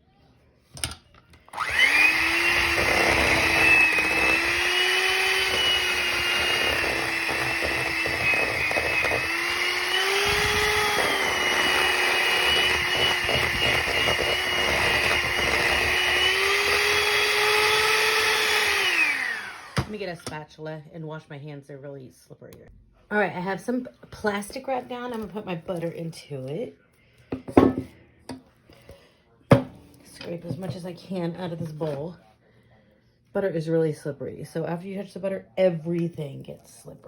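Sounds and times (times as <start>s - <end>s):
electric hand mixer running: 1.5s - 20.0s.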